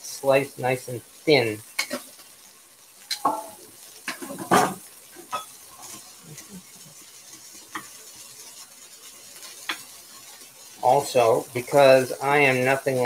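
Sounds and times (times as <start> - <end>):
beef sizzling in a pan: 0.0 - 13.0
utensil knocking and scraping pan: 4.1 - 5.5.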